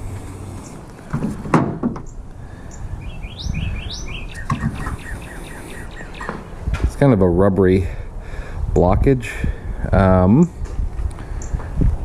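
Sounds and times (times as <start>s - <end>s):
bird chirping: 2.0s - 6.6s.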